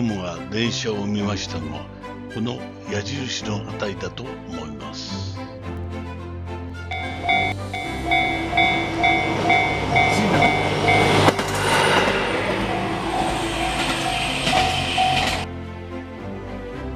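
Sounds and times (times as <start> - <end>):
level crossing bell ringing: 6.9 - 11.4, 12.1 - 15.5
diesel railcar passing: 6.9 - 15.5.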